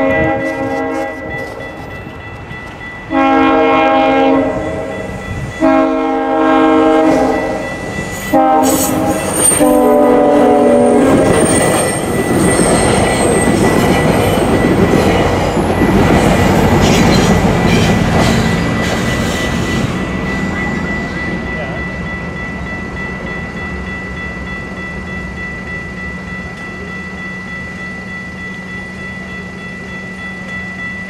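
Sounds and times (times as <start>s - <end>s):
train horn: 0.0s - 1.6s, 3.1s - 7.7s, 8.3s - 11.6s
train wheels clattering on rails: 3.9s - 25.0s.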